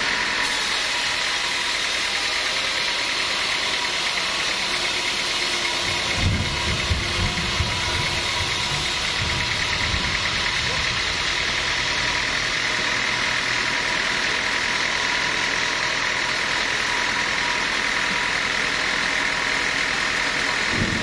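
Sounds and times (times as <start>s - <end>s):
sawmill machinery droning: 0.0s - 21.0s.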